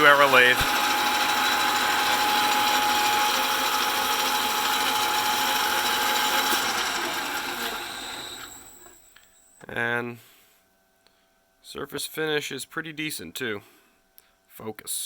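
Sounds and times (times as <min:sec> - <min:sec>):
metal lathe running: 0:00.0 - 0:09.0.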